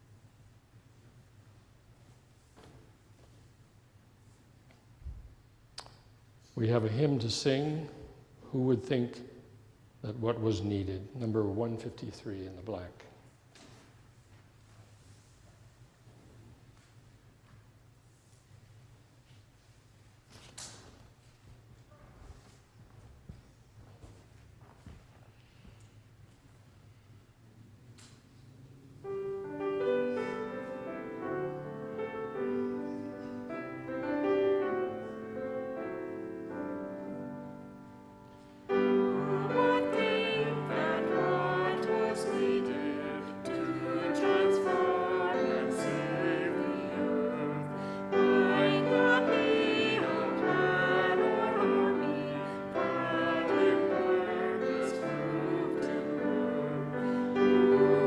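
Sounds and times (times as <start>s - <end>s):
congregation singing a hymn: 29.0s - 58.0s.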